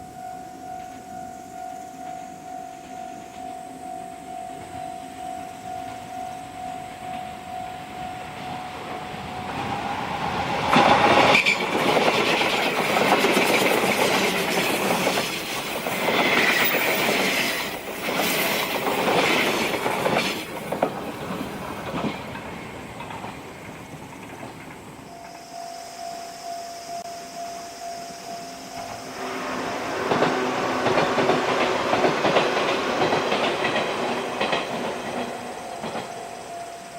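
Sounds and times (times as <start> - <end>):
electric train passing: 0.0 - 36.9
wheels clattering over rail joints: 5.8 - 25.4, 28.8 - 36.8
wheel squeals: 8.3 - 27.1.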